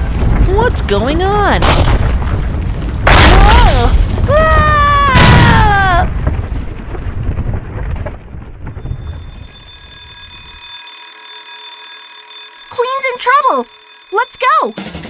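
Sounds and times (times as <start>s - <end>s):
low rumbling crash effect: 0.0s - 9.4s
cartoon character crying out: 3.3s - 6.1s
high-pitched electronic ringing tone: 8.8s - 15.0s.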